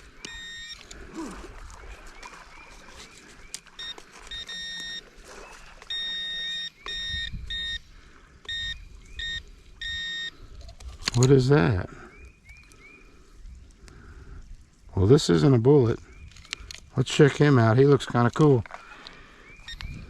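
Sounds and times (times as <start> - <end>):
metal detector beeping: 0.0 - 1.0, 3.0 - 11.4, 19.5 - 20.0
metal detector chirps: 0.0 - 1.0, 3.0 - 10.5, 19.4 - 20.0.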